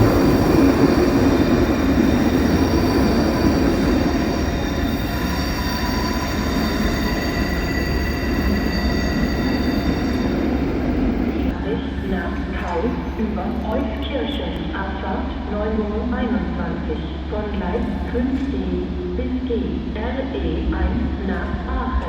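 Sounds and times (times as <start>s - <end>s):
train rumble: 0.0s - 22.0s
wheel squeal: 0.5s - 11.5s.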